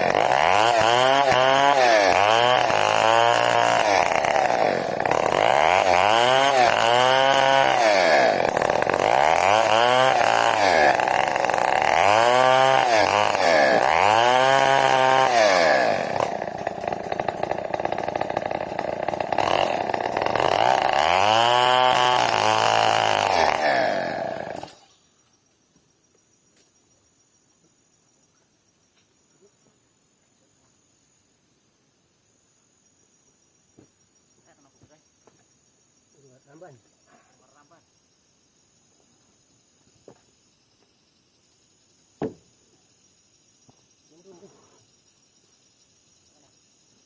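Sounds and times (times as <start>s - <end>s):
chainsaw cutting wood: 0.0s - 25.0s, 42.2s - 42.5s.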